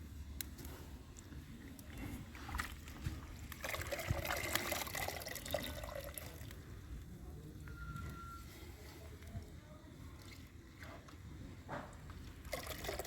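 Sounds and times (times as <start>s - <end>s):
water trickling and splashing: 1.3s - 6.8s, 10.0s - 13.0s.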